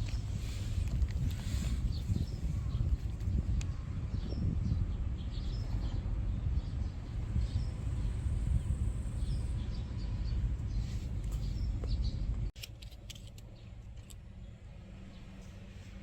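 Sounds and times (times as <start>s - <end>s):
small birds chirping: 0.0s - 12.5s
steady low rumble: 0.0s - 16.0s.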